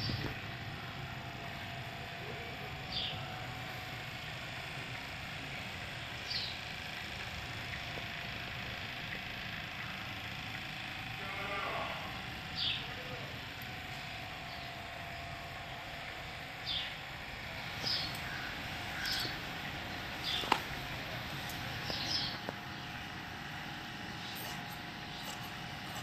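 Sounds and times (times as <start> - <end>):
steady background noise: 0.0 - 26.0
bird chirping: 16.6 - 17.0, 17.7 - 20.7, 21.4 - 22.9.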